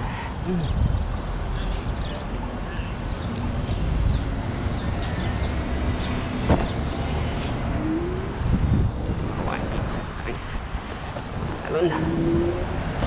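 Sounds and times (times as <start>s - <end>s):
street traffic: 0.0s - 13.0s
wind rumble: 0.0s - 13.0s
sharp click: 5.0s - 5.2s.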